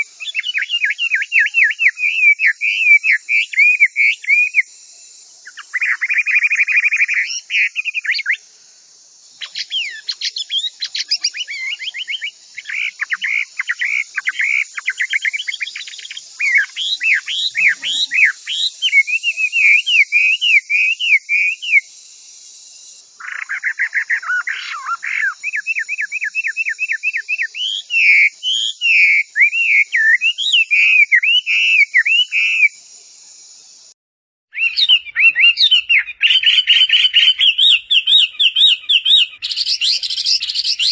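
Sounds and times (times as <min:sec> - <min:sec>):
bird singing whistled trills: 0:00.0 - 0:04.7, 0:05.4 - 0:08.4, 0:09.4 - 0:21.9, 0:22.6 - 0:32.8, 0:34.5 - 0:40.9
steady high hiss: 0:04.6 - 0:20.5, 0:21.5 - 0:23.2, 0:32.7 - 0:34.0.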